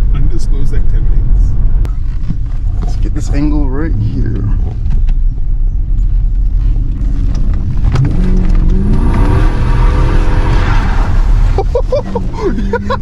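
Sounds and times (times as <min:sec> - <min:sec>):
car engine revving: 0:05.9 - 0:13.0
tires spinning on wet road: 0:07.9 - 0:13.0.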